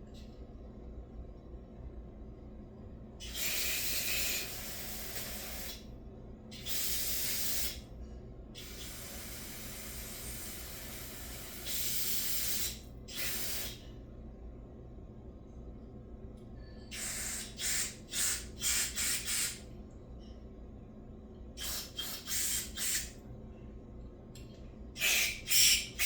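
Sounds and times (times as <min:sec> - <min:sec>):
aerosol spray hissing: 0:03.2 - 0:05.8, 0:06.6 - 0:07.8, 0:08.6 - 0:13.8, 0:17.0 - 0:19.6, 0:21.6 - 0:23.1, 0:25.0 - 0:26.0.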